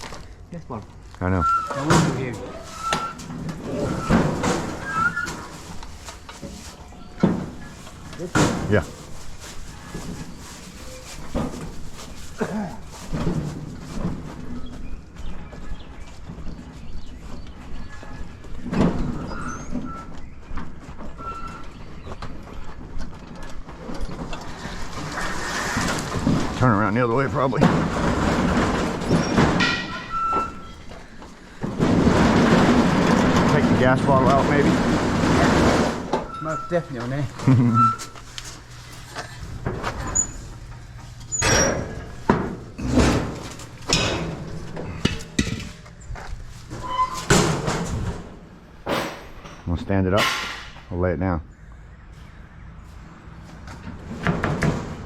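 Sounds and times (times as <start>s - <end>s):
short high squeaks: 1.2s - 5.8s, 29.1s - 30.9s, 36.3s - 38.4s, 46.7s - 47.5s
metal scrap scraping and bumping: 1.2s - 14.8s, 23.2s - 50.9s
heavy metal item knocking and rattling: 27.5s - 30.8s
sharp metal knocks: 48.8s - 50.9s.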